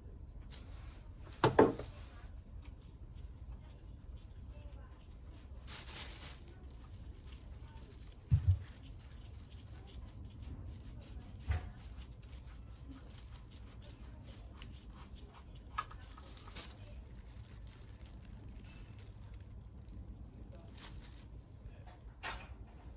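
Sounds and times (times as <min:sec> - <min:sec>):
dull thumps: 0:01.3 - 0:02.0.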